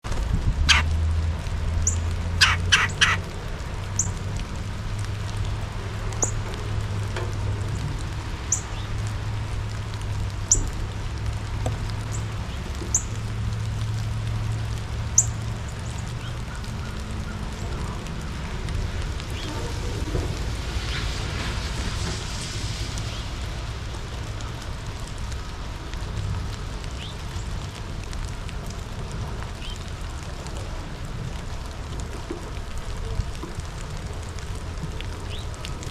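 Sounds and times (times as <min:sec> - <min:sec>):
harsh bird calls: 0:00.7 - 0:00.9, 0:01.8 - 0:03.2.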